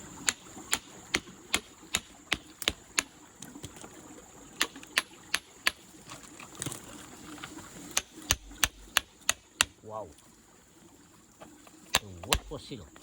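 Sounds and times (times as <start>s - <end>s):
sharp clicking taps: 0.2s - 3.1s, 8.0s - 9.8s, 11.9s - 12.6s.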